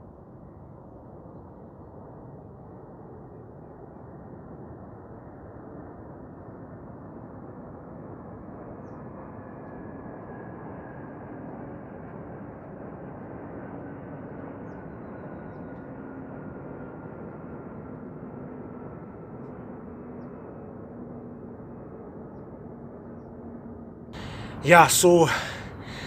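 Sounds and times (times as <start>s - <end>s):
faint hum: 24.2s - 26.0s.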